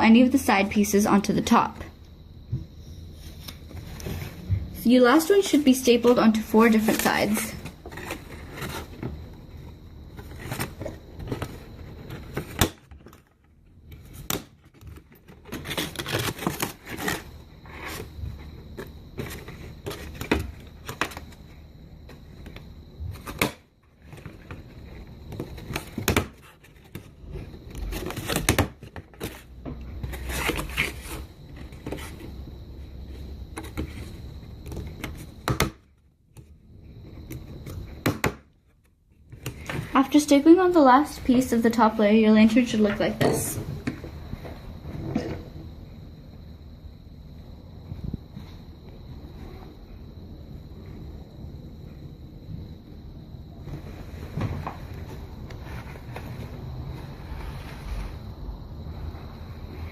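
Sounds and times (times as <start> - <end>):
paper rustling: 5.2 - 21.5.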